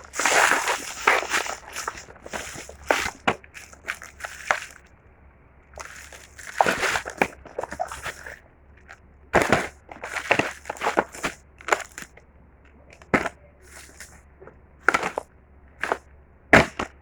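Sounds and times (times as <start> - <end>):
packaging crinkling and rustling: 0.0 - 4.8, 5.8 - 8.4, 9.4 - 12.1.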